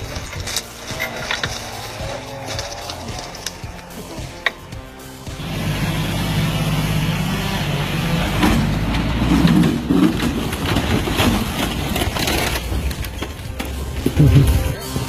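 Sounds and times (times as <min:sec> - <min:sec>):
knocks and cracking: 0:00.0 - 0:04.9, 0:08.2 - 0:15.0
heavy engine running: 0:00.0 - 0:14.6.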